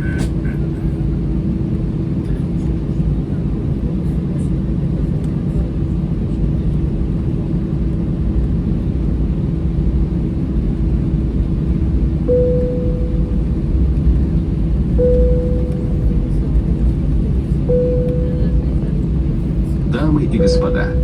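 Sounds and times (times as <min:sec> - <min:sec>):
airplane cabin engine hum: 0:00.0 - 0:21.0
single-note chimes: 0:12.3 - 0:13.4, 0:15.0 - 0:16.0, 0:17.7 - 0:18.6, 0:20.4 - 0:21.0.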